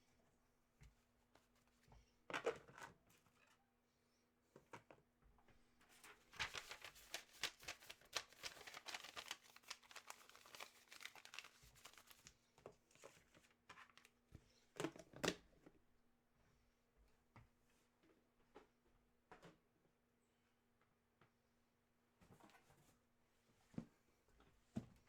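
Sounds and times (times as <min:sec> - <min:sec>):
packaging crinkling: 0:06.1 - 0:12.3.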